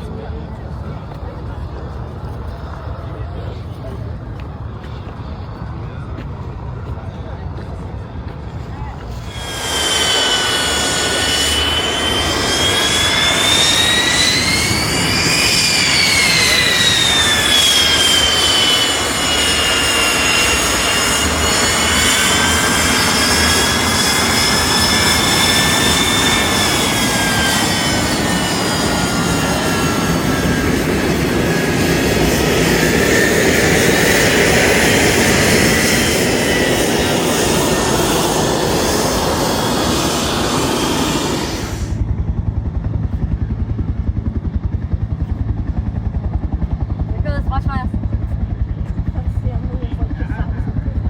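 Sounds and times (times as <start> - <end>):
aircraft engine running: 0.0 - 51.0
high whine: 9.0 - 42.1.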